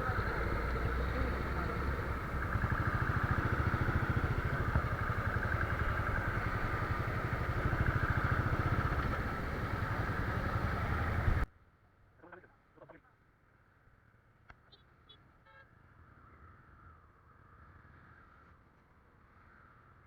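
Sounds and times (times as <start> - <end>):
motorcycle engine running: 0.0 - 11.5.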